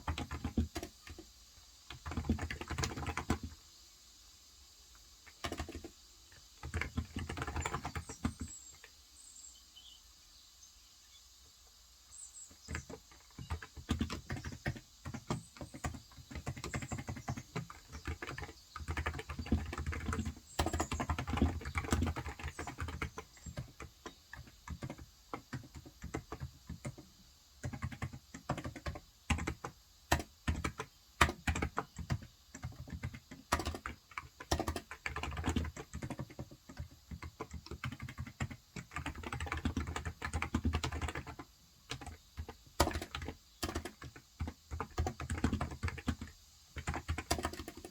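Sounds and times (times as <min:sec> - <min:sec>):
keyboard typing: 0:00.0 - 0:01.2, 0:01.9 - 0:03.6, 0:05.3 - 0:08.9, 0:12.6 - 0:47.9
faint bird chirps: 0:02.0 - 0:29.0.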